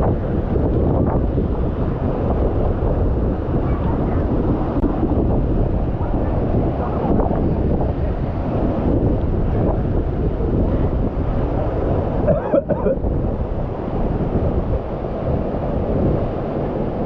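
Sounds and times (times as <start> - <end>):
waterfall roaring: 3.5 - 17.0.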